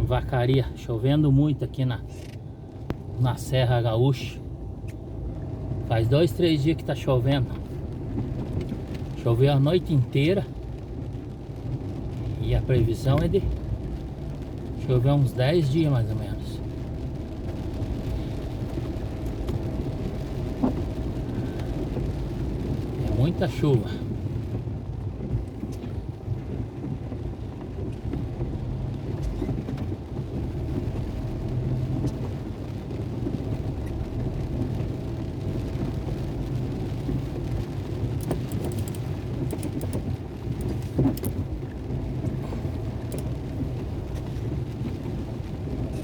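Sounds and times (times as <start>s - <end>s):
heavy rain falling: 6.5s - 46.0s
faint ticks: 38.1s - 41.4s.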